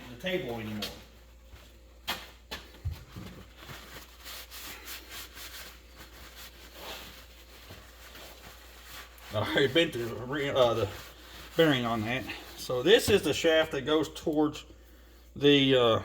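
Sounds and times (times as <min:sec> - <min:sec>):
faint rubbing and scraping: 0:03.1 - 0:13.3.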